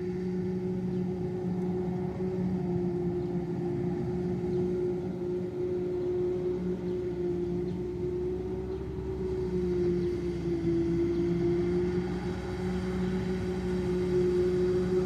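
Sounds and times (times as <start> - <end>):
heavy farm machinery droning: 0.0 - 15.0.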